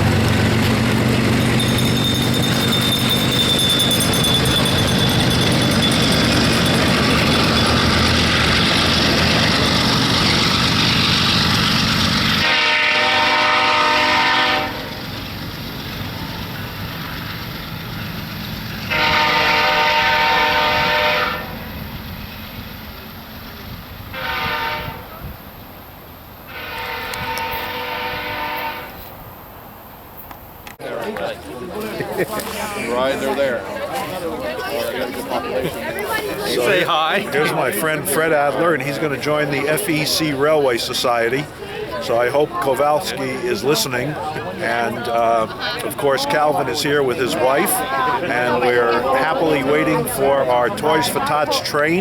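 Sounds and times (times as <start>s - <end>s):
locomotive horn blasts: 0.0s - 15.1s, 18.8s - 21.7s, 24.1s - 25.1s, 26.5s - 29.1s
train wheels rumbling on rail: 0.0s - 29.4s, 31.4s - 52.0s.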